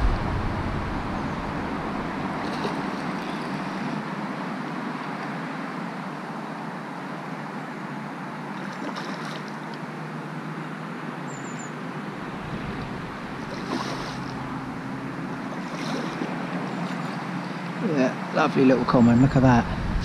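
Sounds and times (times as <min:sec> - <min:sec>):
wind rushing: 0:00.0 - 0:03.2, 0:12.1 - 0:14.9, 0:18.8 - 0:20.0
wind buffeting microphone: 0:00.0 - 0:04.2, 0:12.1 - 0:15.5, 0:18.8 - 0:20.0.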